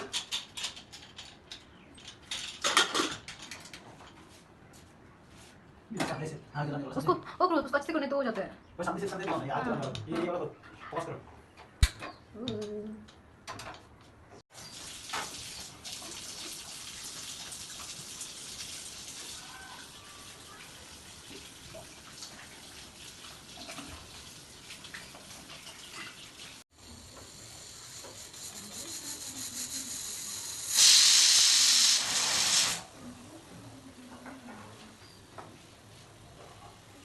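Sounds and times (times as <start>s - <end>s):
food hissing in a pot: 26.8s - 32.9s
loud hissing burst: 26.8s - 32.9s.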